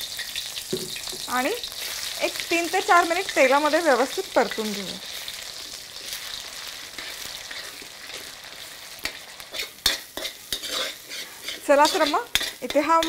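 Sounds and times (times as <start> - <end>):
paste sizzling in hot oil: 0.0 - 13.0
metal spoon scraping pan: 5.5 - 8.4, 9.0 - 13.0.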